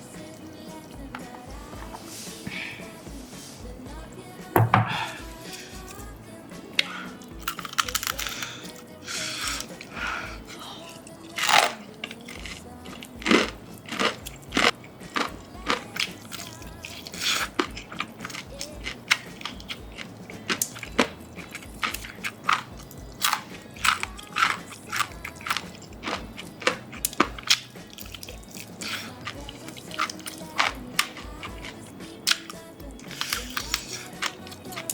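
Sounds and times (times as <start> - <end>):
fried chicken crunching when chewed: 7.2 - 34.9.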